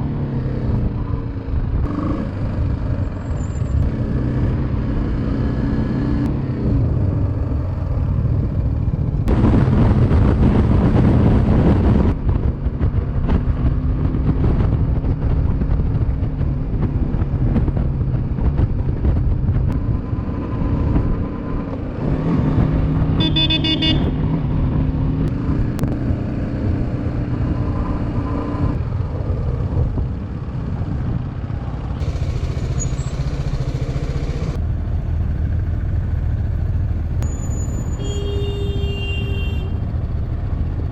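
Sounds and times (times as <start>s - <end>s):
motorcycle engine running: 0.0s - 40.9s
road noise: 0.0s - 40.9s
vehicle horn: 23.2s - 24.3s, 37.2s - 39.8s.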